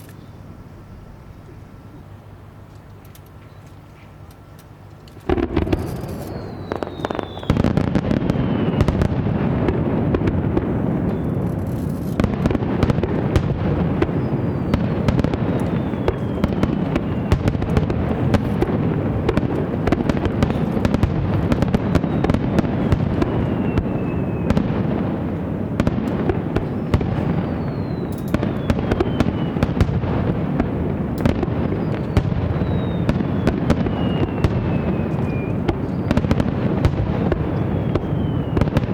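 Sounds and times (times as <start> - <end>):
fireworks bangs and crackling: 5.2 - 38.9
falling firework whistle: 5.3 - 9.8, 11.1 - 25.2, 25.8 - 30.4, 31.2 - 38.9.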